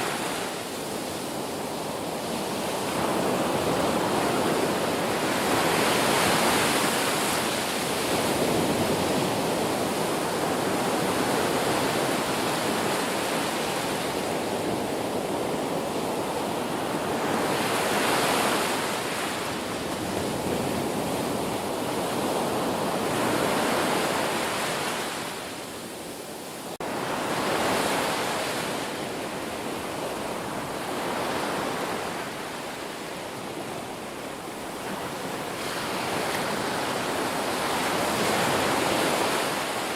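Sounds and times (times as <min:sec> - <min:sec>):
waves breaking: 0:26.4 - 0:39.9.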